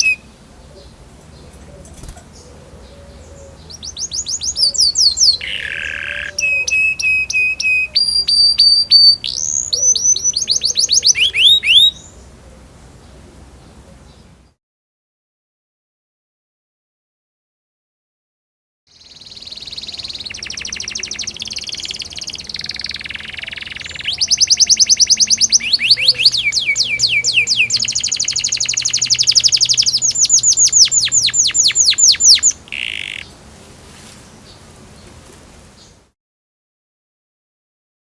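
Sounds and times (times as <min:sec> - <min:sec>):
canary singing trills: 0:00.0 - 0:12.4, 0:18.9 - 0:35.2.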